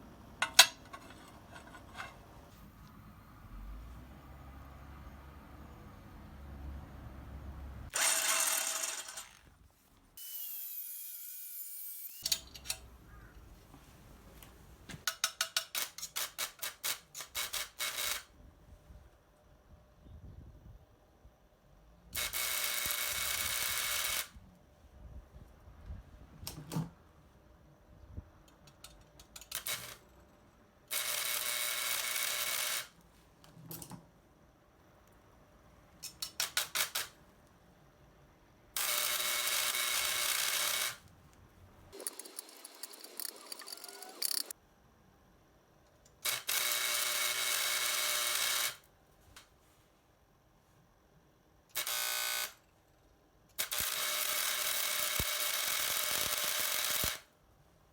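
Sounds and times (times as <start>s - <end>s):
arc welder buzzing: 7.9s - 9.6s, 22.2s - 24.4s, 30.9s - 33.0s, 38.8s - 41.0s, 46.2s - 48.9s, 51.7s - 52.6s, 53.6s - 57.3s.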